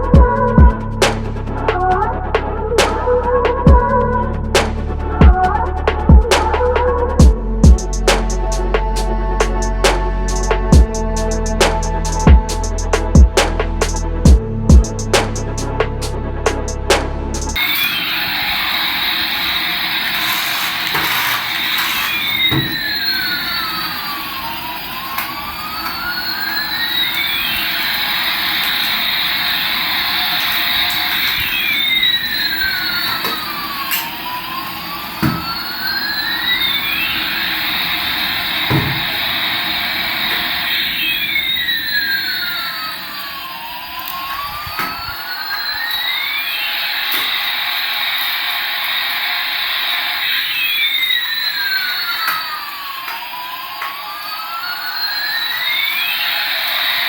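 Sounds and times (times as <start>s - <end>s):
toy jet engine sound effect: 17.4s - 57.0s.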